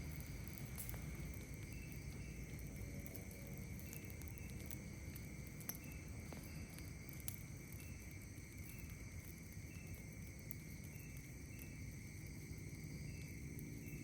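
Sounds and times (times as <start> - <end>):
campfire popping and crackling: 0.0 - 14.0
insect chirp: 0.0 - 14.0
low steady noise: 0.0 - 14.0
night insects calling: 0.0 - 14.0.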